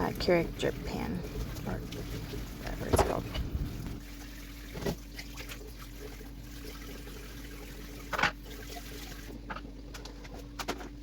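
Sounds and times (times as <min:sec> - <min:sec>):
water trickling from tap: 0:00.0 - 0:09.4
dishes washed at sink: 0:00.0 - 0:11.0.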